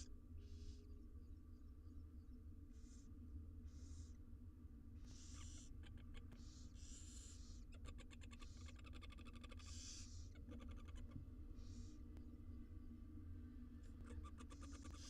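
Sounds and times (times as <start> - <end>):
faint low hum: 0.0 - 15.0
owl nestlings hissing: 2.7 - 4.2, 4.9 - 12.1, 14.1 - 15.0.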